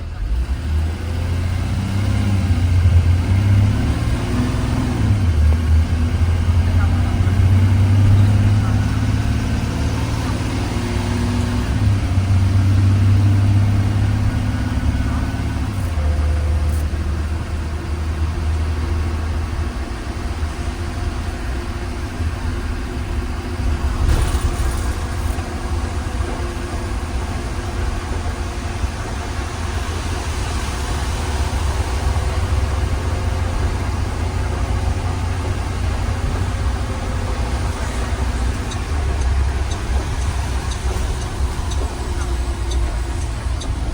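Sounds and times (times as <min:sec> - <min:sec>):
bus engine drone: 0:00.0 - 0:43.9
brief clatter: 0:23.8 - 0:25.7.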